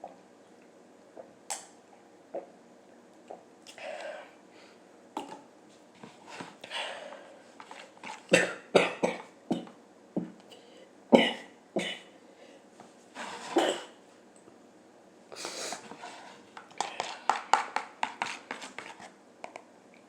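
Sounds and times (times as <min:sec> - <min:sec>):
person coughing: 0:08.3 - 0:09.7, 0:11.2 - 0:12.1, 0:13.5 - 0:14.0.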